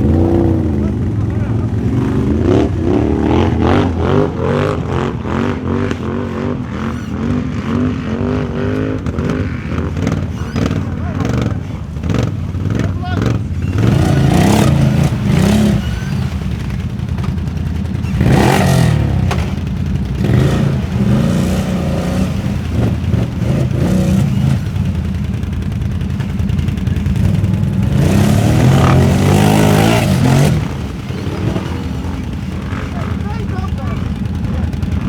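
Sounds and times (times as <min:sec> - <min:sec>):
atv engines revving: 0:00.0 - 0:35.0.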